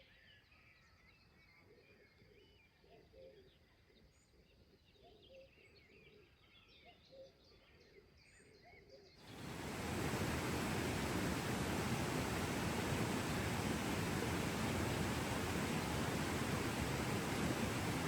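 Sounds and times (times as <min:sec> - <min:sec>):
birds chirping: 0:09.3 - 0:18.0.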